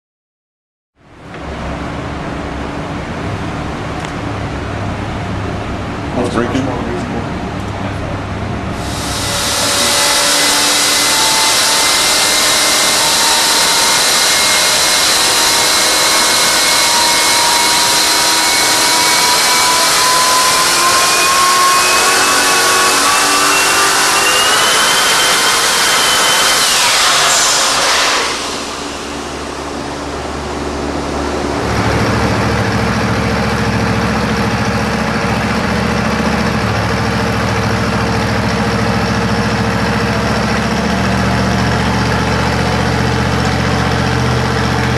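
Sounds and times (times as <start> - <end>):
turbo engine whine: 1.0 - 44.9
engine idling: 27.3 - 44.9.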